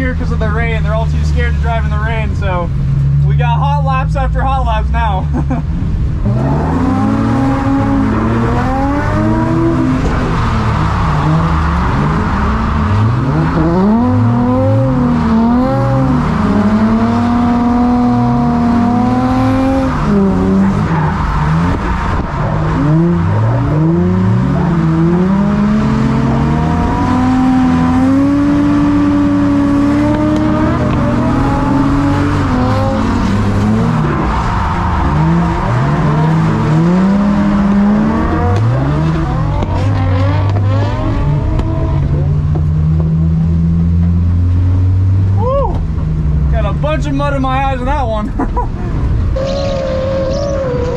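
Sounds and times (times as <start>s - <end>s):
car engine revving hard: 4.9s - 45.3s.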